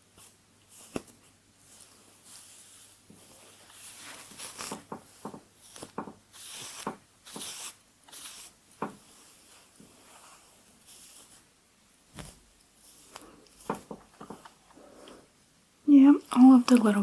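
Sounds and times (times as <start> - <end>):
hairbrush strokes through hair: 1.6 - 11.5, 12.2 - 13.9.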